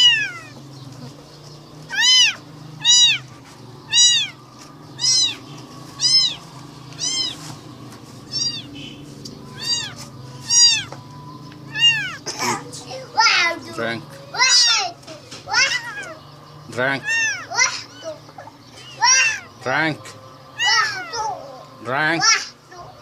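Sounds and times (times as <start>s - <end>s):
kitten meowing: 0.0s - 0.6s, 1.9s - 4.4s, 5.0s - 7.5s, 8.2s - 8.8s, 9.4s - 11.0s, 11.6s - 12.3s, 14.3s - 14.9s, 15.5s - 16.2s, 17.0s - 18.2s, 18.9s - 19.5s, 20.6s - 21.4s.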